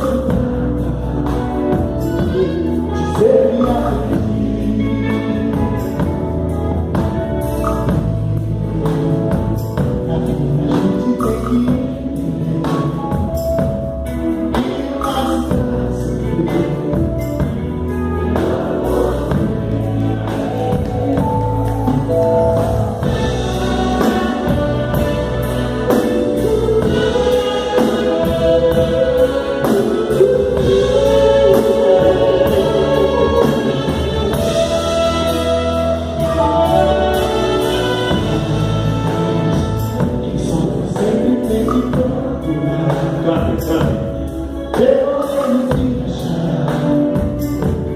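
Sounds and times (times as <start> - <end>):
band playing with steady beat: 0.0 - 47.9
voices singing together: 14.6 - 43.8.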